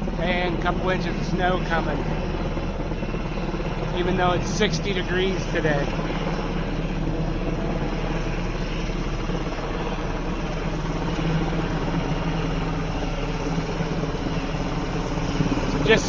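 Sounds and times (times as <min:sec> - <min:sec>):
helicopter running: 0:00.0 - 0:16.0.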